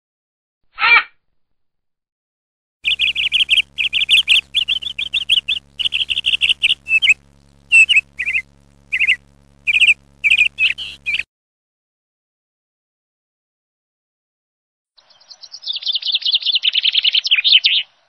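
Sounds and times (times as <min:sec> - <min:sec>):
bird chirping rapidly: 0:02.8 - 0:11.2.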